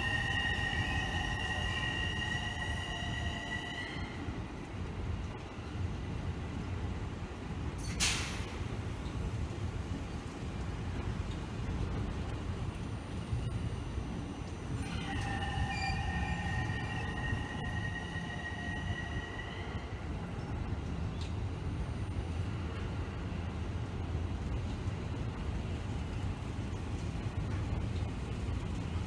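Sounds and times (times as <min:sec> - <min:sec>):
high wheel squeal: 0:00.0 - 0:04.7, 0:14.8 - 0:20.6
train rumbling on rails: 0:00.0 - 0:29.0.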